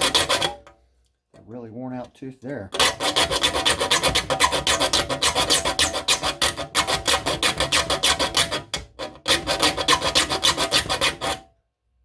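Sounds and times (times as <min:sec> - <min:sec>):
metal file rasping saw teeth: 0:00.0 - 0:00.8, 0:02.7 - 0:11.5.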